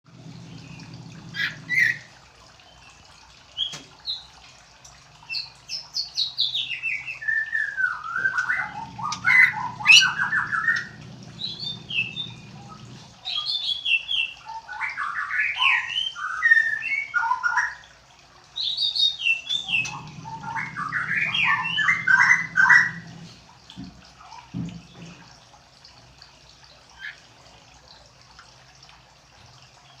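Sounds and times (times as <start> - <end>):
bird singing chirps and trills: 5.2 - 17.8, 18.6 - 23.3.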